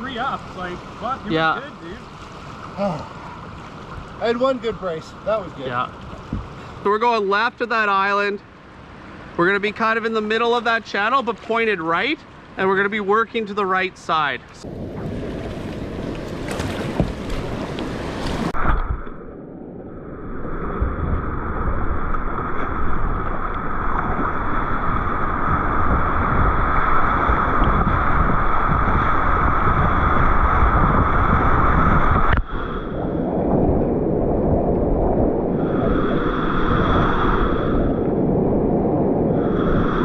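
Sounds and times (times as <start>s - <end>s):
wind buffeting microphone: 0.0s - 6.8s, 14.6s - 19.3s, 20.0s - 40.0s
whitewater rushing and splashing: 0.0s - 8.3s, 8.9s - 18.9s.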